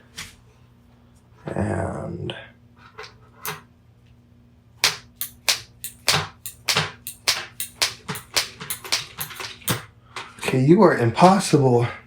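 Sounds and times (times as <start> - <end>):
sharp hard strikes: 4.8 - 9.4.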